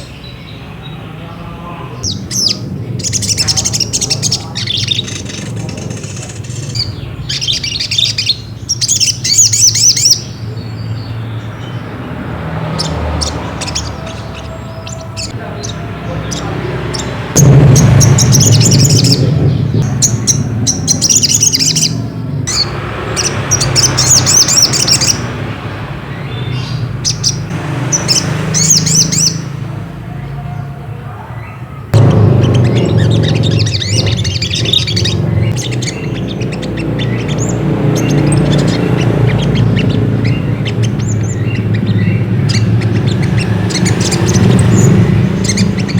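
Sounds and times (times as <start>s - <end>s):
bird chirping rapidly: 0.0s - 30.4s, 31.4s - 45.9s
steady low hum: 15.8s - 21.3s, 32.0s - 43.4s.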